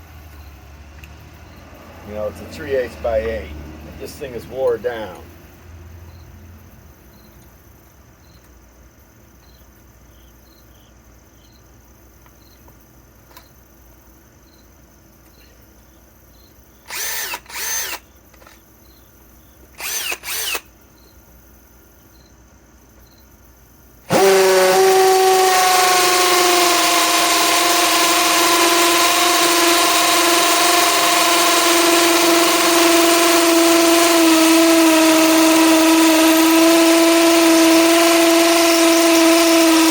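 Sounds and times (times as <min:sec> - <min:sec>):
hammer drill drilling brick: 0:16.9 - 0:18.6, 0:19.8 - 0:20.7, 0:24.1 - 0:39.9.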